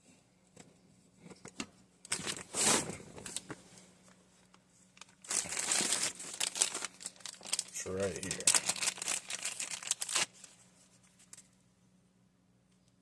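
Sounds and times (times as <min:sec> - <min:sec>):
packaging rustling: 0:02.1 - 0:03.6, 0:04.5 - 0:11.5.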